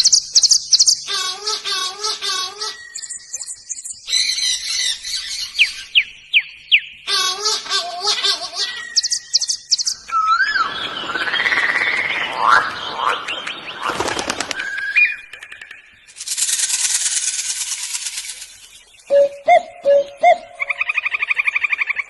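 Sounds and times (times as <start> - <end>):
gliding bird calls: 8.6 - 22.0
bird whistle: 8.9 - 12.0
rapid bird rattle: 15.4 - 18.8.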